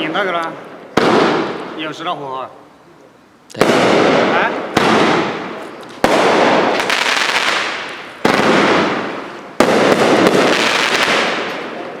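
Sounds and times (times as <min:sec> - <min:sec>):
firework shots: 0:00.0 - 0:02.0, 0:03.5 - 0:12.0
firework crackle: 0:03.5 - 0:12.0.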